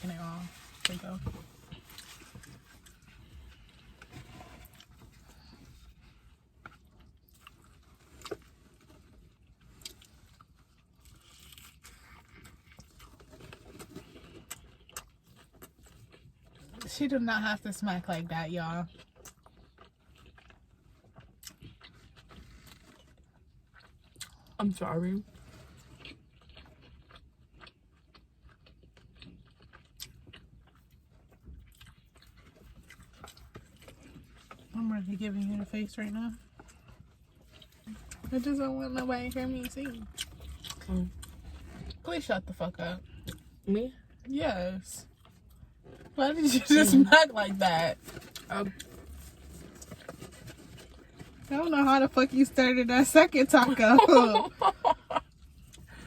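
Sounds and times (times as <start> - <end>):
chewing and lip smacks: 1.6 - 17.0, 18.8 - 24.6, 25.4 - 34.8, 39.5 - 42.0, 43.1 - 44.2.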